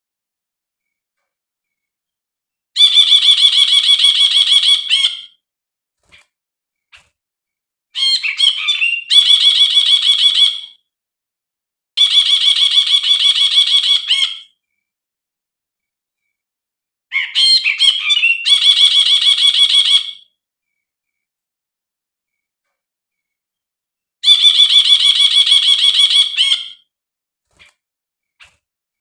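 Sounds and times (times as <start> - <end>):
bird chattering song: 8.0 - 10.7, 17.1 - 20.2, 24.2 - 26.8.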